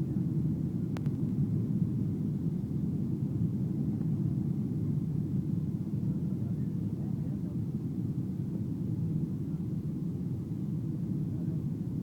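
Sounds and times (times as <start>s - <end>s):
aircraft cabin engine rumble: 0.0s - 12.0s
faint click: 0.9s - 1.4s.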